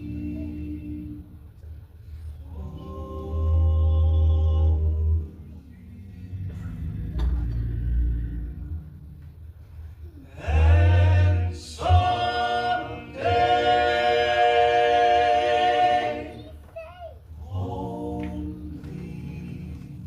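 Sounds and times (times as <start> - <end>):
vocal quartet singing in harmony: 0.0 - 9.2, 10.2 - 16.7, 17.3 - 20.0.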